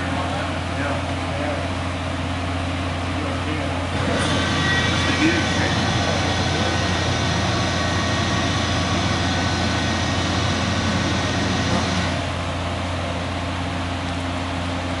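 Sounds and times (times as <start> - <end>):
furnace machine hum: 0.0 - 15.0
faint whining tones: 4.0 - 12.2.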